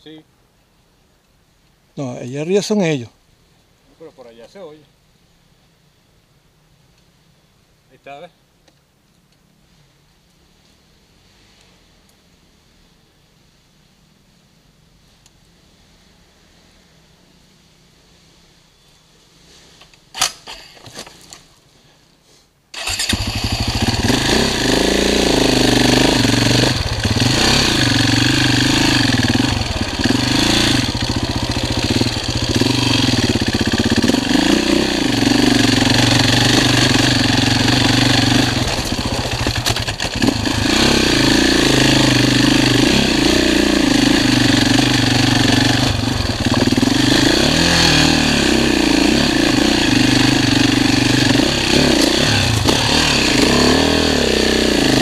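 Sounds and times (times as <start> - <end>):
dirt bike engine revving: 22.8 - 55.0.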